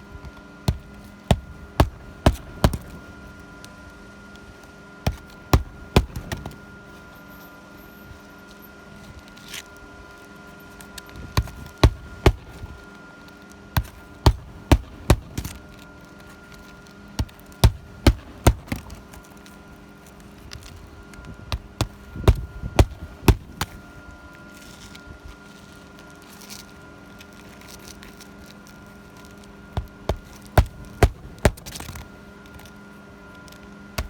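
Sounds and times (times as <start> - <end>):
hammer knocking nails into shingles: 0.7 - 2.9, 5.1 - 6.6, 11.4 - 12.6, 13.8 - 15.5, 17.2 - 18.9, 21.6 - 23.8, 29.8 - 32.0.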